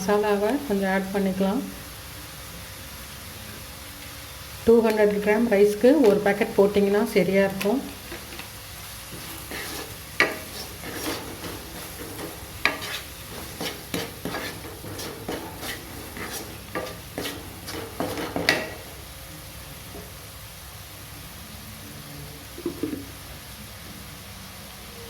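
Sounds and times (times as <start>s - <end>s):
vegetables sizzling in a pan: 0.0s - 25.0s
utensil scraping a pan: 7.6s - 18.9s.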